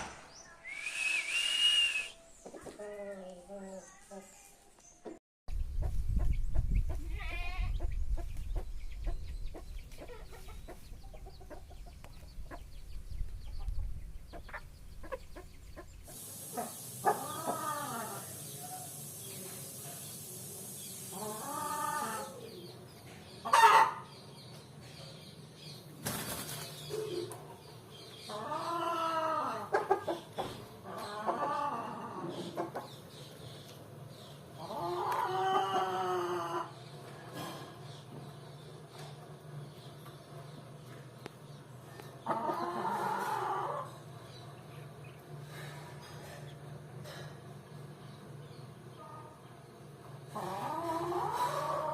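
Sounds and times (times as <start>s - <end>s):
chickens calling and clucking: 5.0s - 19.4s, 20.0s - 51.9s
low rumble of wind: 5.5s - 16.1s.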